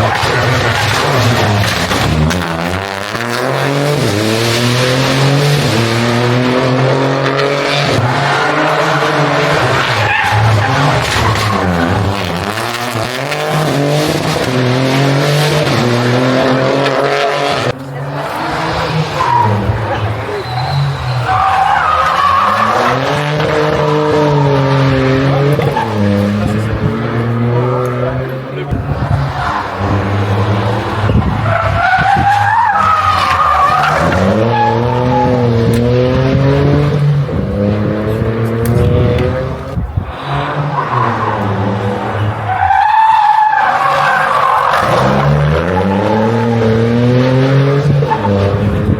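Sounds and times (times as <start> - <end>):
car engine accelerating through gears: 0.0 - 43.5, 44.1 - 48.9
tyres squealing: 7.8 - 13.8, 17.7 - 35.6, 40.0 - 47.0.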